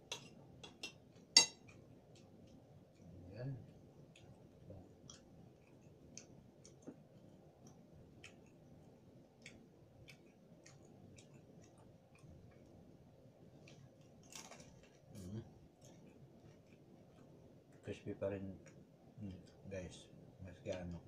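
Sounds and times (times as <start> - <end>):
crisp chewing clicks: 4.0 - 12.8.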